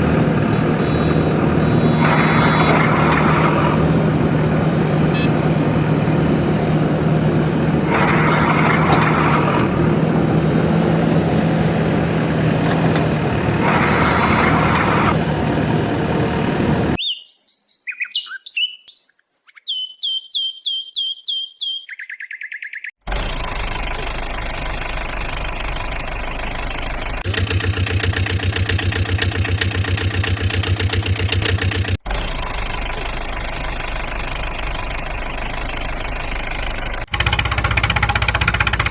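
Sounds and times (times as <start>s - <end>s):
heavy vehicle engine: 0.0s - 17.0s, 23.0s - 38.9s
bird chirps: 0.8s - 2.1s, 17.0s - 23.0s.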